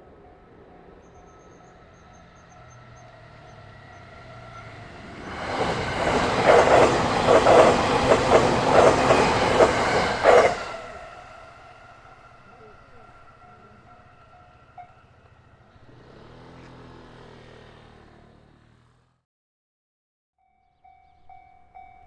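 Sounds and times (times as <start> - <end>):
level crossing warning bell: 0.0 - 10.5, 12.0 - 15.9, 20.4 - 22.0
train wheels clattering over rail joints: 1.4 - 11.0.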